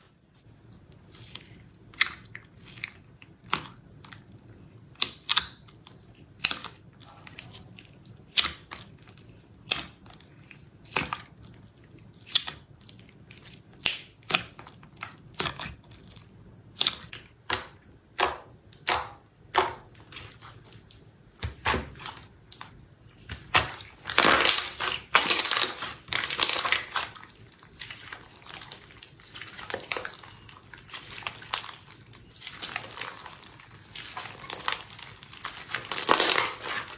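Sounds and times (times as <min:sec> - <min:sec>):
slime popping and crackling: 0:23.3 - 0:36.9.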